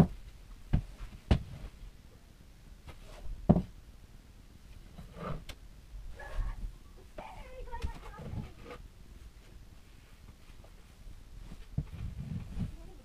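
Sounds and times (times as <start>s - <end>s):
knocks in a small room: 3.5s - 3.7s.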